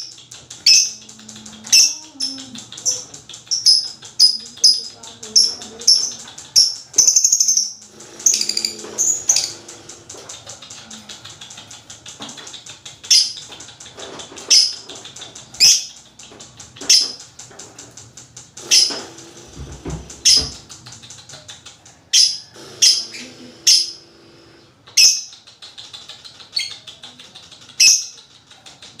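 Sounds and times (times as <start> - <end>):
lovebird shrill calls: 5.9 - 9.6.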